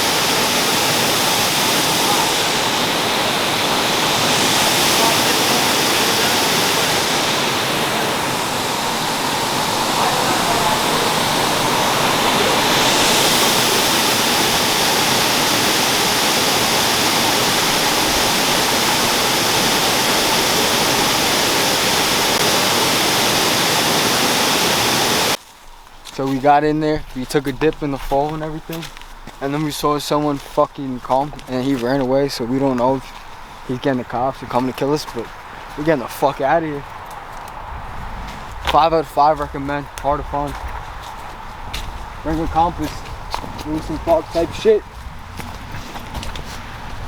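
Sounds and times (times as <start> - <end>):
waterfall pouring: 0.0 - 25.3.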